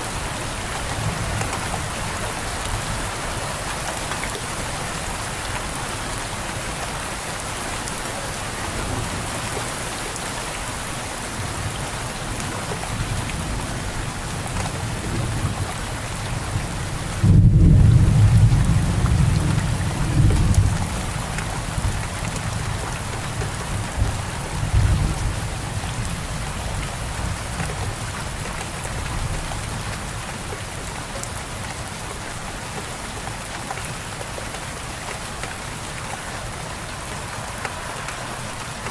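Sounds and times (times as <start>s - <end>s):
steady rain: 0.0s - 38.9s
thunder rumbling: 17.0s - 22.7s.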